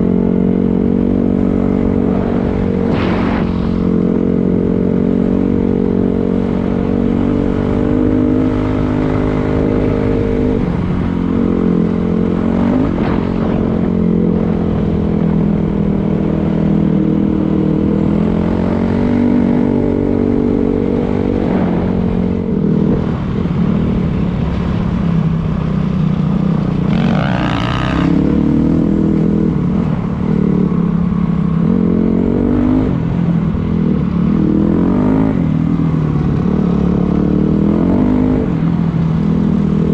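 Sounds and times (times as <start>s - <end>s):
dirt bike engine revving: 26.6s - 29.5s.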